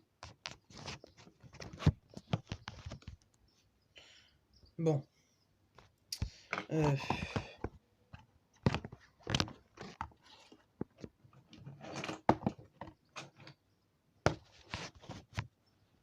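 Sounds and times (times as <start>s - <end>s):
plastic scraping rustles: 6.3s - 13.6s, 14.3s - 15.5s.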